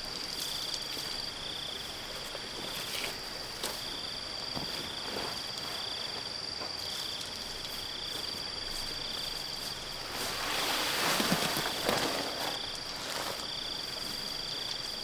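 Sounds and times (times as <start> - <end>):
high insect trill: 0.0 - 15.0
rustling noise: 8.8 - 15.0.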